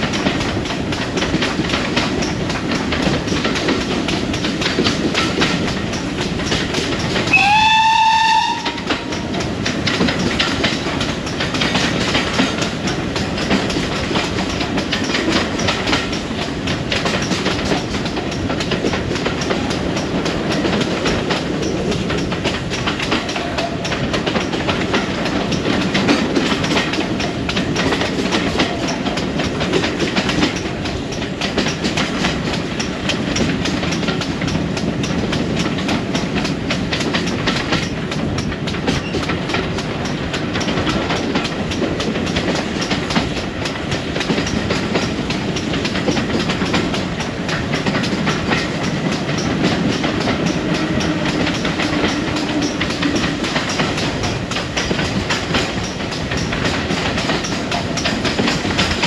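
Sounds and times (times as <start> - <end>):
train wheels clickety-clack: 0.0 - 59.0.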